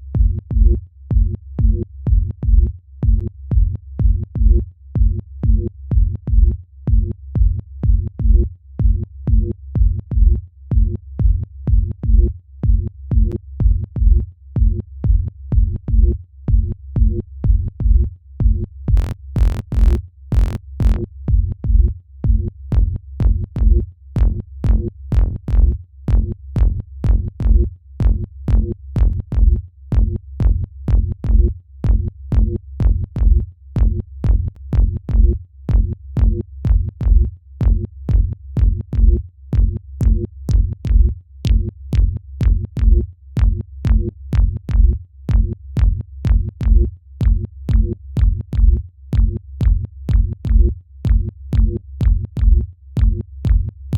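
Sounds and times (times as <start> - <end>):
heavy kick drum and bass: 0.0 - 53.9
electronic dance music: 19.0 - 21.0.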